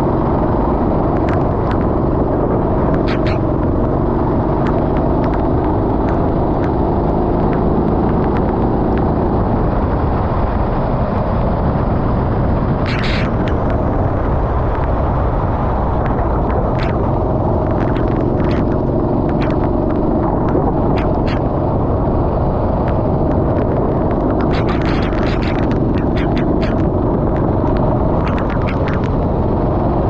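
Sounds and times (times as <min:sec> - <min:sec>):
kart engine running: 0:00.0 - 0:09.6, 0:12.8 - 0:13.9, 0:16.0 - 0:22.2, 0:22.8 - 0:30.0
rumbling wind noise: 0:00.0 - 0:30.0
sharp ticks: 0:01.0 - 0:02.0, 0:02.8 - 0:09.2, 0:12.8 - 0:13.9, 0:16.0 - 0:21.6, 0:22.9 - 0:29.4.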